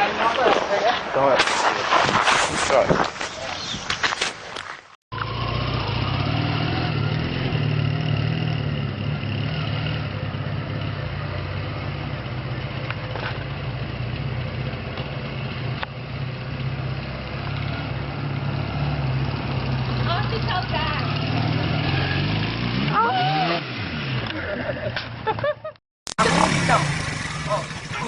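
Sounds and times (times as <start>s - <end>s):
motorcycle engine running: 5.2s - 24.5s, 26.2s - 28.0s.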